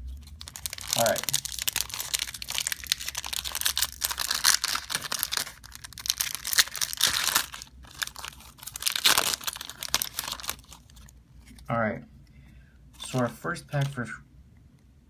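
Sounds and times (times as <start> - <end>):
foil wrapper tearing and crinkling: 0.2 - 11.1.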